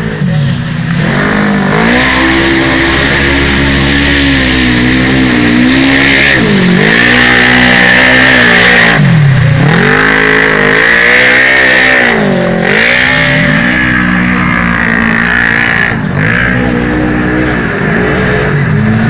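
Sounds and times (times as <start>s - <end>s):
quad bike engines revving: 0.0s - 19.0s.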